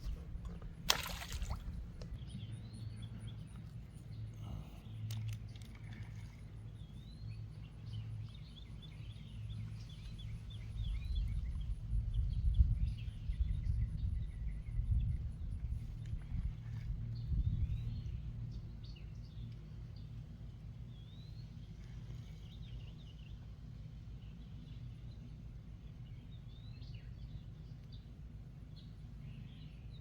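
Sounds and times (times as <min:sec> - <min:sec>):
low uneven rumble: 0:00.0 - 0:08.0
small birds chirping: 0:00.0 - 0:30.0.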